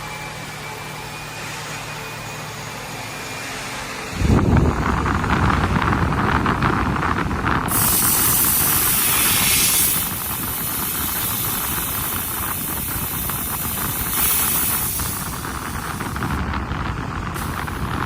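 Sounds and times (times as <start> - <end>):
low machine rumble: 0.0 - 18.0
laser cutter gas hissing: 7.7 - 16.4, 17.2 - 18.0.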